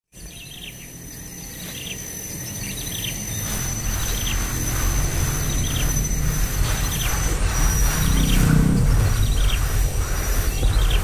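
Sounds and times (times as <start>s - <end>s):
high-pitched insect whine: 0.2s - 11.0s
small bird chirping: 0.2s - 11.0s
low rumble: 3.3s - 11.0s.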